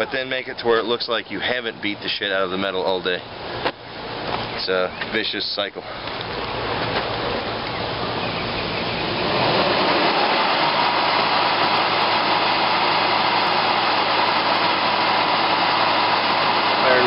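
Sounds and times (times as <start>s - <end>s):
forge air and fire rushing: 9.1s - 17.0s.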